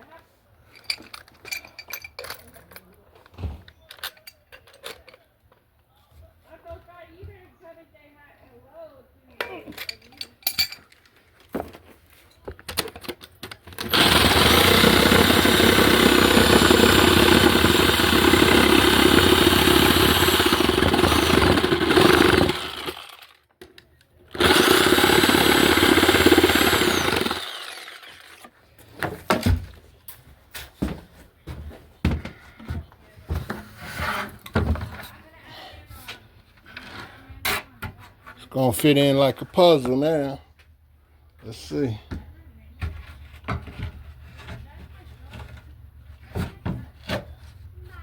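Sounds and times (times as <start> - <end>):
power saw cutting wood: 13.8 - 23.4, 24.3 - 28.5.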